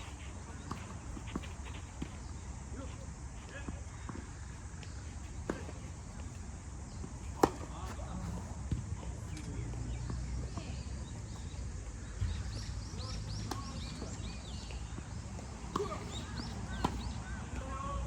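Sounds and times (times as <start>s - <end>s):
tennis ball struck by rackets: 7.0s - 8.8s, 15.4s - 17.2s.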